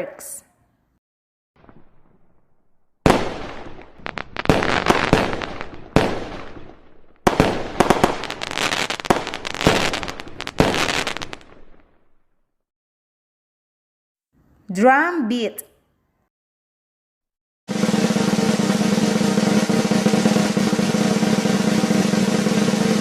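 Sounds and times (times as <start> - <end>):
fireworks bangs: 1.6 - 12.2, 17.7 - 23.0
fireworks crackling: 1.6 - 12.2, 17.7 - 23.0.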